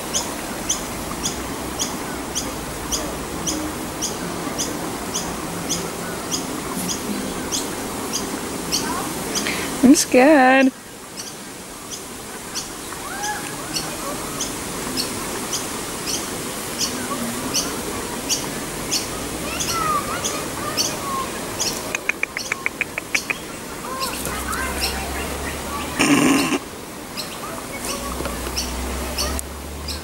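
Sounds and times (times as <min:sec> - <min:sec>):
quick run of ticks: 0:21.7 - 0:23.4.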